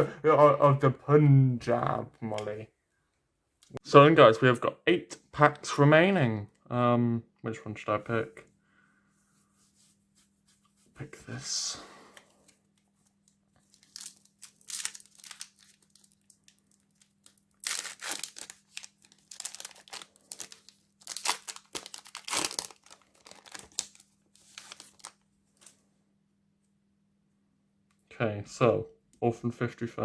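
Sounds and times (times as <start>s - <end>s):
wrapper tearing and crinkling: 13.6s - 25.7s.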